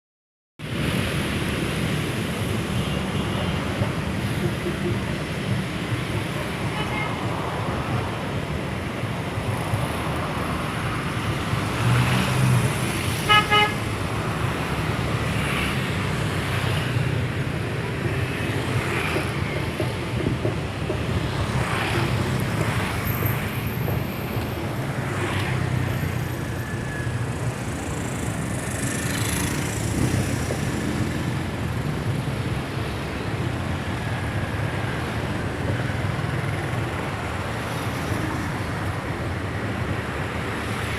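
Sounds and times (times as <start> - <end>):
road traffic with vehicles passing: 0.6 - 40.9
car horn toot: 13.3 - 13.8.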